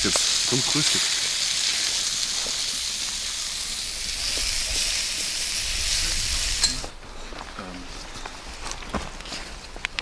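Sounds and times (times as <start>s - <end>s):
food sizzling in a pan: 0.0s - 6.8s.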